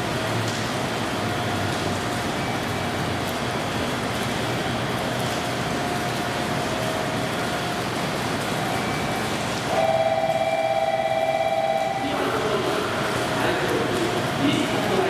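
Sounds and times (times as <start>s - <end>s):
train whine: 5.7s - 15.0s.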